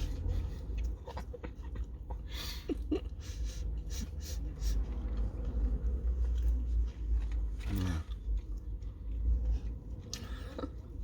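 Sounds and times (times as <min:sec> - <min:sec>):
steady low rumble: 0:00.0 - 0:11.0
person chewing food: 0:04.4 - 0:11.0.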